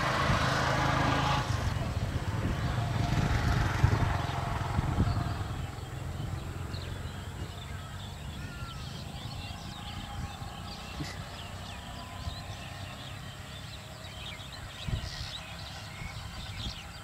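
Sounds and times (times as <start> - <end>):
train passing rumble: 0.0 - 7.8
birds chirping: 0.0 - 17.0.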